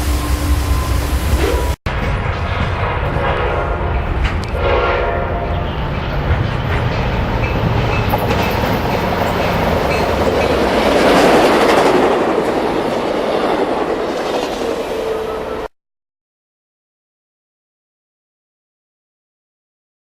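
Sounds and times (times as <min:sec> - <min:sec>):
train passing: 0:00.0 - 0:15.7
wheels clattering over rail joints: 0:05.5 - 0:14.7.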